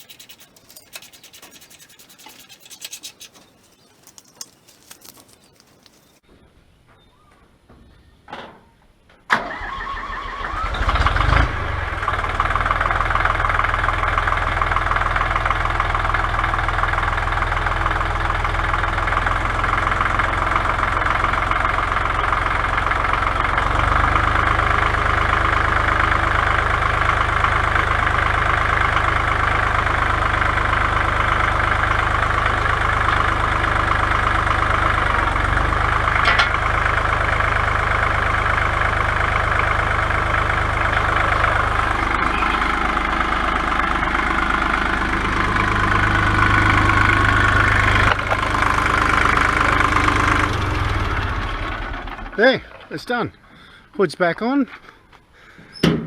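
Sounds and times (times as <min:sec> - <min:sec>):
tractor engine starting: 0:09.3 - 0:52.8
tractor engine idling: 0:12.0 - 0:52.4.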